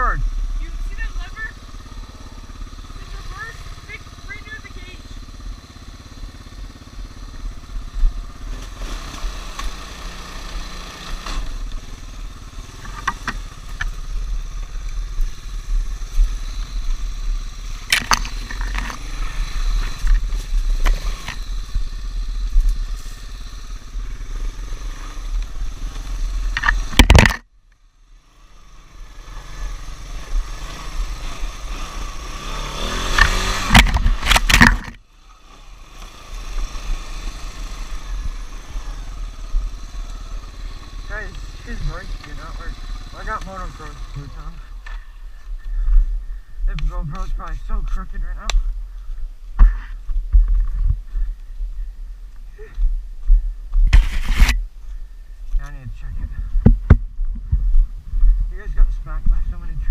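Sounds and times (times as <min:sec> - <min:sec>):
off-road vehicle engine running: 0:00.0 - 0:59.9
knocks and clatter: 0:33.1 - 0:35.0.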